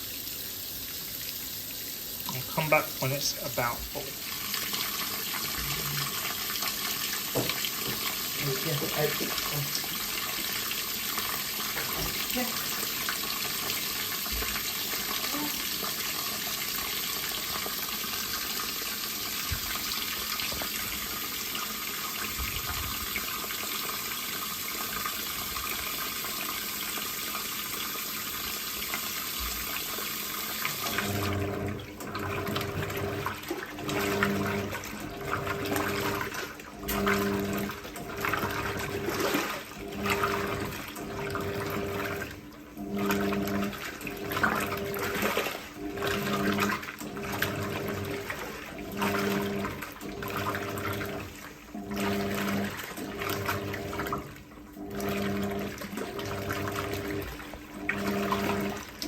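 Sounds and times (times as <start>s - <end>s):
water pouring into washing machine: 0.0s - 59.0s
agitator motor humming: 2.0s - 23.6s, 28.2s - 59.0s
water sloshing: 32.8s - 42.2s.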